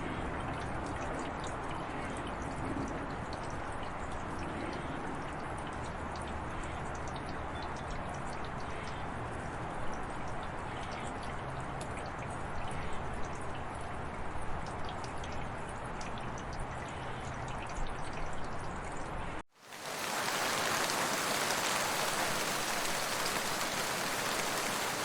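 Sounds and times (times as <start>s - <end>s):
steady rain hiss: 19.6s - 25.0s.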